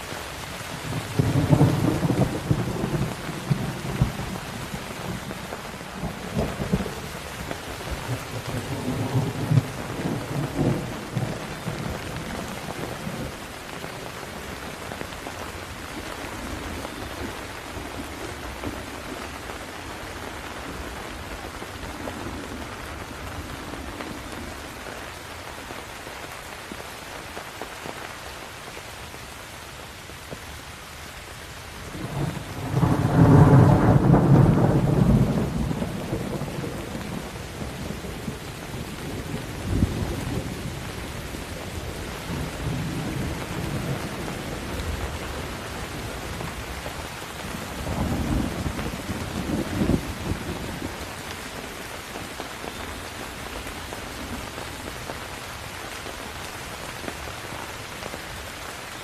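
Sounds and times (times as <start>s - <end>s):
rain falling: 0.0s - 59.0s
thunder rumbling: 0.8s - 24.8s, 31.8s - 52.4s.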